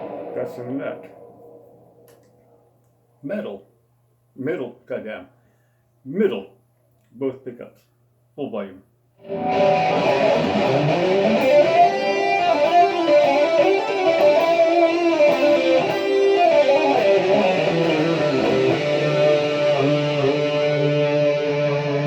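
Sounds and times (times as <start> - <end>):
electric guitar melody: 9.2 - 22.0.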